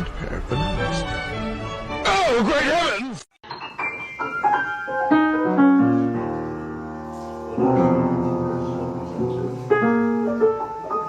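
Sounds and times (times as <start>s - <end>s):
piano chords ringing: 3.4s - 11.0s.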